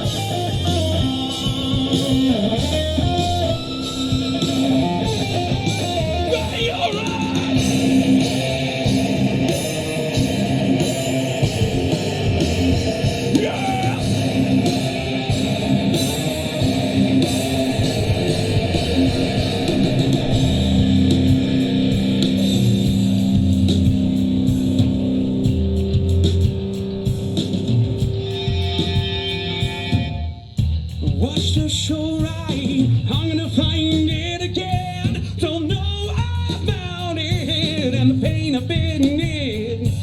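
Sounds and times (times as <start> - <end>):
held guitar notes: 0.0 - 30.5
live rock band playing: 0.0 - 40.0.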